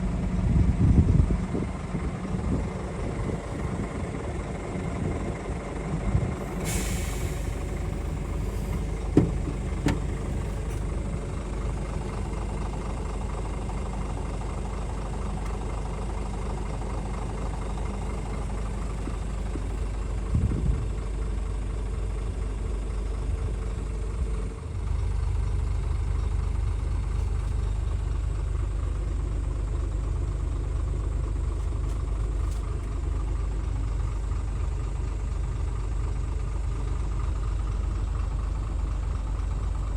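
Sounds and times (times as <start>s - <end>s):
diesel truck idling: 0.0s - 39.9s
air release hiss: 6.4s - 10.8s.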